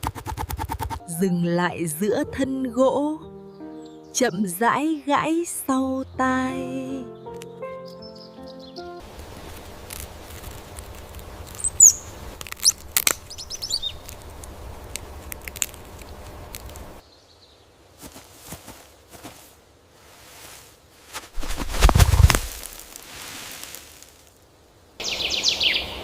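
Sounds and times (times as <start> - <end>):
birds chirping: 3.3 - 9.0, 11.4 - 14.8, 25.0 - 26.0.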